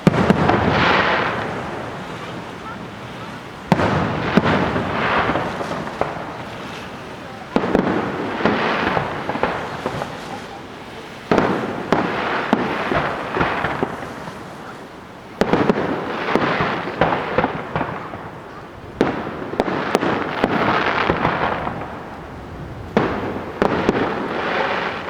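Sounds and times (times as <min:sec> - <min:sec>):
firework shells bursting: 0:00.0 - 0:14.8, 0:22.9 - 0:25.0
firework crackling and hiss: 0:00.0 - 0:25.0.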